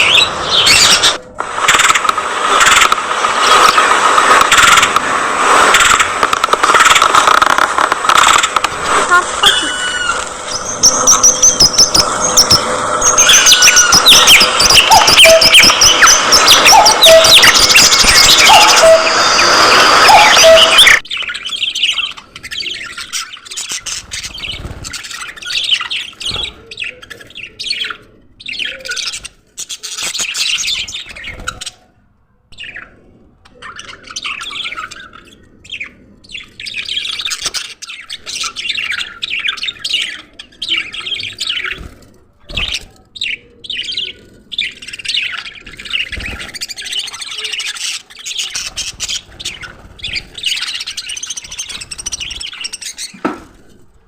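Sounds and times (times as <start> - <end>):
budgerigars chirping: 9.4 - 31.8, 42.6 - 53.2.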